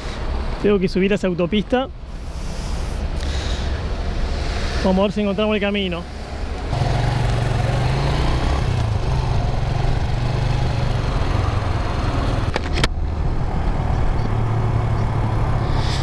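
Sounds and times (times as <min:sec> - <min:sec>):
wind and road noise: 0:00.0 - 0:16.0
motorcycle engine running: 0:06.7 - 0:12.6.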